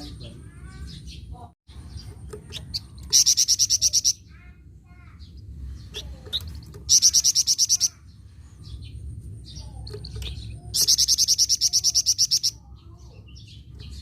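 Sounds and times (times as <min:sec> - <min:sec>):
soft bird chirps: 0:00.0 - 0:14.0
songbird singing rapid high notes: 0:00.9 - 0:04.4, 0:05.2 - 0:08.2, 0:09.5 - 0:14.0.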